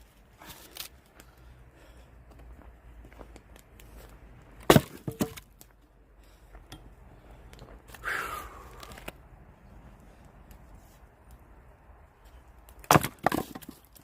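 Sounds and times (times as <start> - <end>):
axe striking log: 4.6 - 5.4, 12.8 - 13.9.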